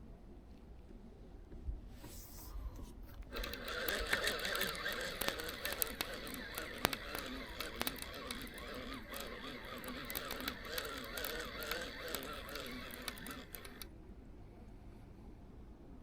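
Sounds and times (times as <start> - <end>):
sharp clicks: 3.1 - 13.9.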